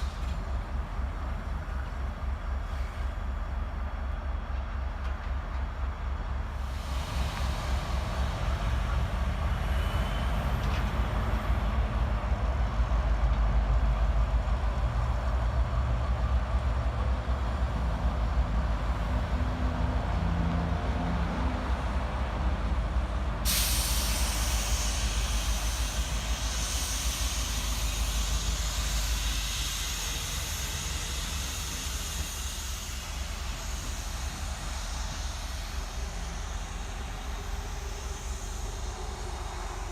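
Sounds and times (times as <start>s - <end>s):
diesel locomotive rumbling: 0.0s - 39.9s
air brakes hissing: 2.6s - 3.3s, 6.5s - 11.8s, 23.4s - 39.9s.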